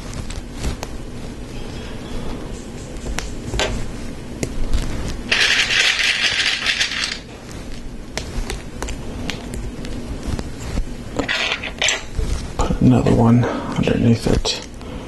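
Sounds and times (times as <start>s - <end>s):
plastic pieces clicking and clattering: 5.3s - 7.2s.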